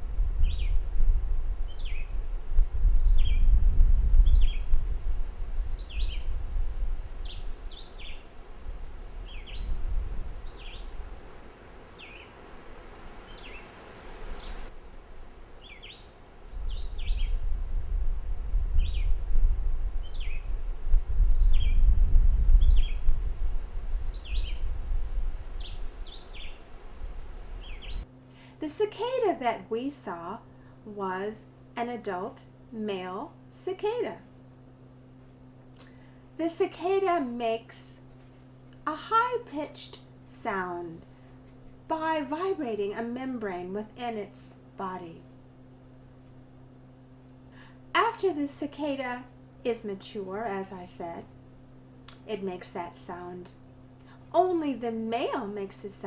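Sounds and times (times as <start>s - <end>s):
low rumble: 0.0s - 11.6s, 16.4s - 28.0s
bird chirping: 1.7s - 2.2s, 3.0s - 3.5s, 4.3s - 4.8s, 5.7s - 6.3s, 7.2s - 8.3s, 9.2s - 9.8s, 10.4s - 10.9s, 11.6s - 12.4s, 13.3s - 14.7s, 15.6s - 17.4s, 20.0s - 20.5s, 21.4s - 21.9s, 22.6s - 23.1s, 24.1s - 24.7s, 25.6s - 26.7s, 27.6s - 28.0s.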